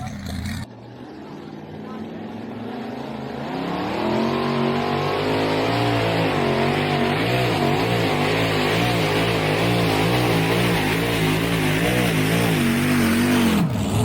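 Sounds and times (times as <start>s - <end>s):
truck engine revving under load: 3.3s - 14.0s.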